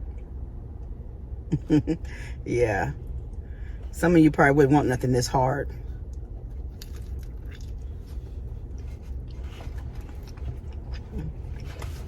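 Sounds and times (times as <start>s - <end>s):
steady low hum: 0.0s - 12.0s
chewing crunchy crust: 6.0s - 12.0s.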